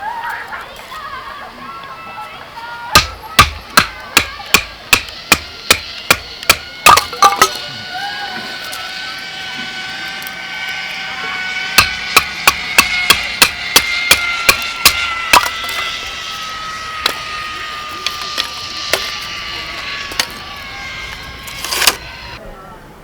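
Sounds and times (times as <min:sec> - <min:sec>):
firewood chopping: 0:02.9 - 0:07.9, 0:09.8 - 0:22.4.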